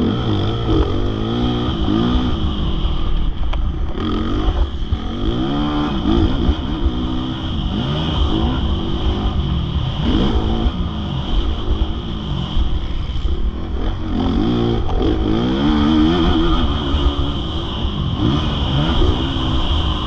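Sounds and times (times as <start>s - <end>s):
motocross bike engine revving: 0.0s - 20.0s.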